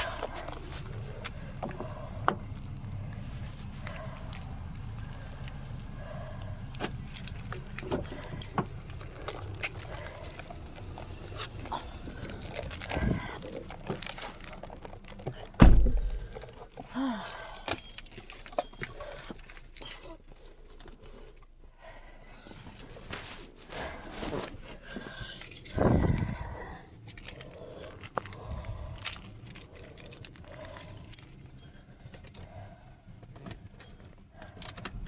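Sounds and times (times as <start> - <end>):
loud thump: 15.6 - 16.2.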